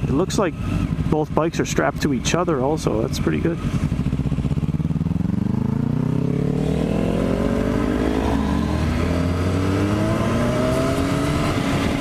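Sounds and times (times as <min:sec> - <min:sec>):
motorcycle engine accelerating: 0:00.0 - 0:12.0
wind noise: 0:07.6 - 0:12.0.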